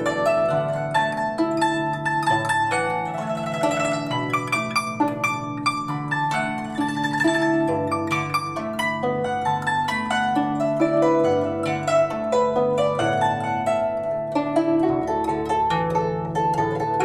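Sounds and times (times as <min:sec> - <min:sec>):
zither melody: 0:00.0 - 0:17.0.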